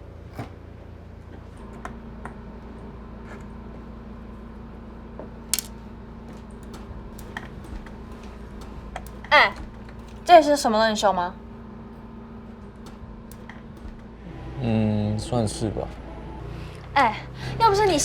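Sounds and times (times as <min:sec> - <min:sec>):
steady low hum: 0:00.0 - 0:18.0
clicks of hard objects handled: 0:05.5 - 0:05.8.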